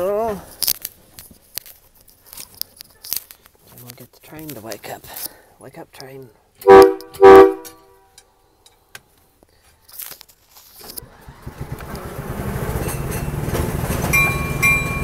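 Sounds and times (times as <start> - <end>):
ride-on train drive running: 10.8 - 15.0.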